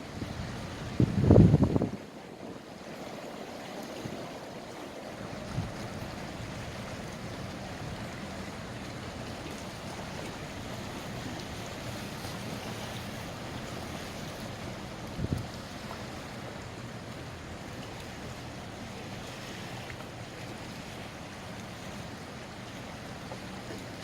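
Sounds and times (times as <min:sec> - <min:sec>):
wind on microphone: 0:00.0 - 0:02.6, 0:15.0 - 0:15.7
water noise: 0:00.0 - 0:24.0.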